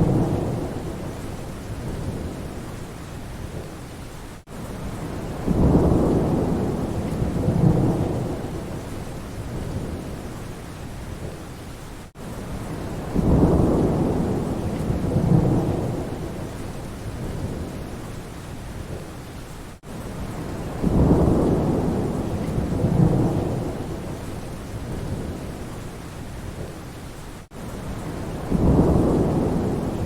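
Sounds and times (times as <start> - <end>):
low rolls of thunder: 0.0 - 2.7, 4.8 - 10.4, 12.5 - 18.0, 19.8 - 25.8, 27.5 - 30.0
steady rain: 0.0 - 30.0.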